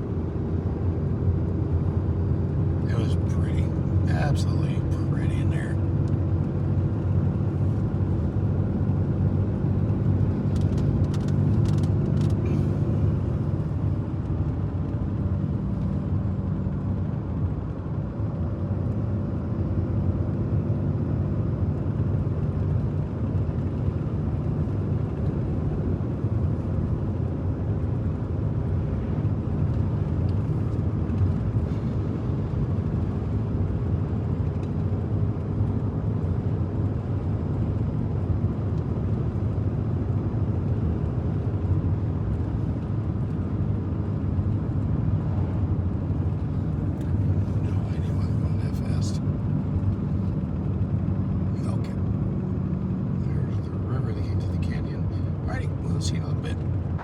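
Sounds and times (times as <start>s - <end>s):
truck driving on highway: 0.0s - 57.0s.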